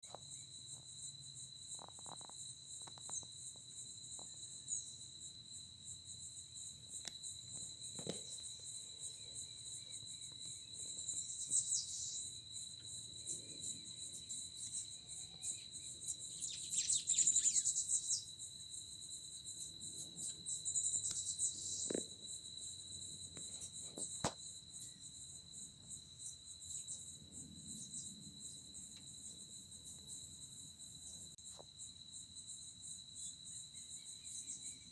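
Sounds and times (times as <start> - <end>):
crickets trilling: 0.0 - 34.9.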